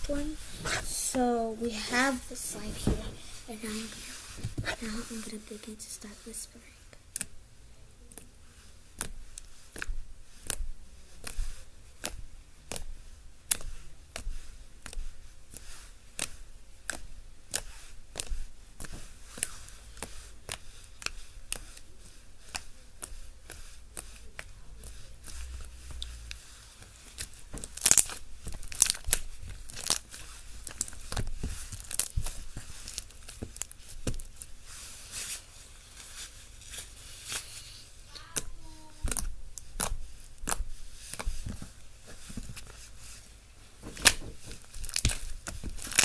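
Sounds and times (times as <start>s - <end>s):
slime squeezed with sticky pops: 7.0s - 7.4s, 8.1s - 34.8s, 38.1s - 42.7s, 43.8s - 46.0s.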